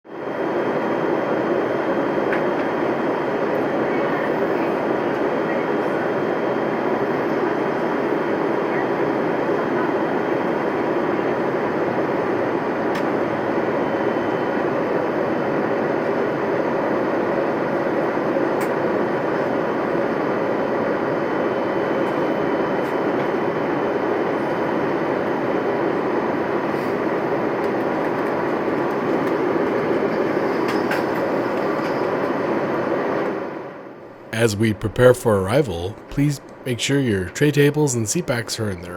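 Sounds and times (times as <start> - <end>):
airplane cabin airflow and engine noise: 0.1 - 38.9
faint high steady tone: 34.2 - 38.9.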